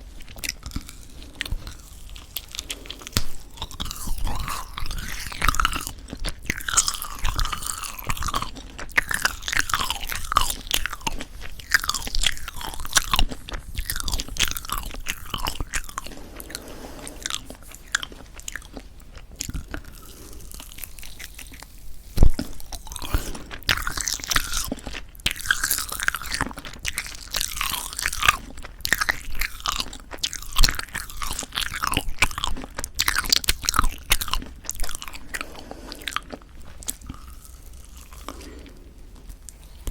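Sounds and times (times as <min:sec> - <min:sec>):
wet chewing mouth sounds: 0:00.0 - 0:39.9.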